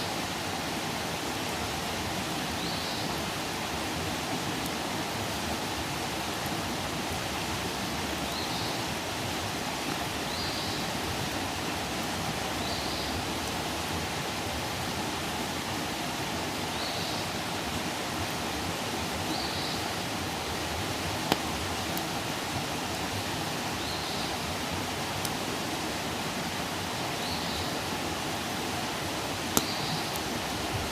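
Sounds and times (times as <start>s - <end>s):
campfire hissing and crackling: 0.0s - 30.9s.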